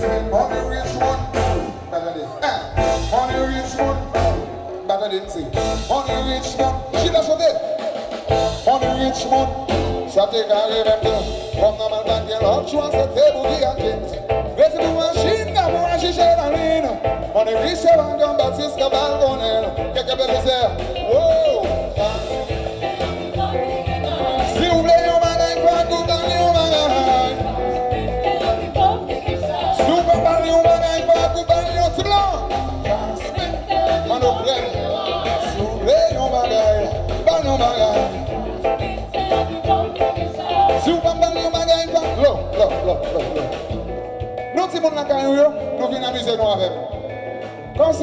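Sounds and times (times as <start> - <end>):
bass and drum beat: 0.0 - 1.9, 2.8 - 4.7, 5.4 - 48.0
pitch-bending melody line: 0.0 - 7.5, 8.3 - 48.0
person singing: 0.0 - 43.8
live band music: 0.0 - 48.0.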